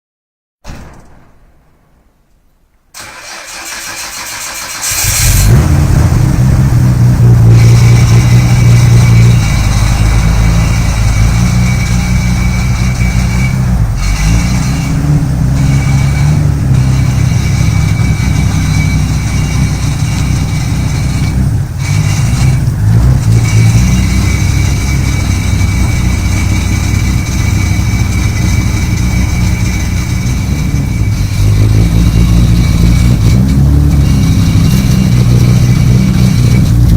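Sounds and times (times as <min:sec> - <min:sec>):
starter motor cranking: 0:03.0 - 0:36.9
car engine idling loudly: 0:03.2 - 0:36.9.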